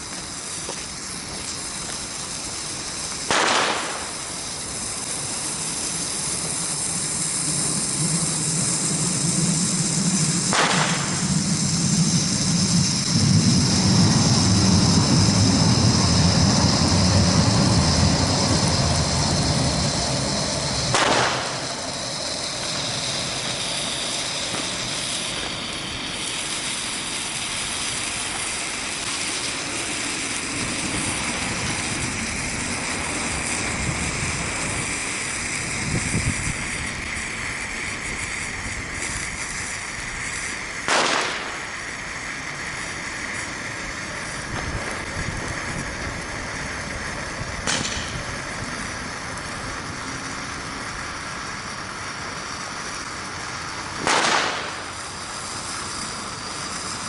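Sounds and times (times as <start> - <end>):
firecracker bangs: 0.0 - 6.6, 10.2 - 11.7, 20.8 - 31.0, 40.7 - 41.9, 44.5 - 45.0, 47.6 - 48.3, 54.0 - 55.0
steady high hiss: 0.0 - 57.0
low rumble: 4.0 - 37.6.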